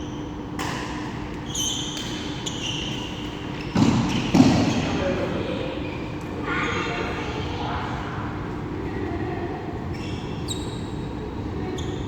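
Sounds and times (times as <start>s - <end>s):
steady hall hum: 0.0s - 12.0s
sneakers squeaking on court floor: 1.4s - 5.1s, 9.9s - 11.1s, 11.8s - 12.0s.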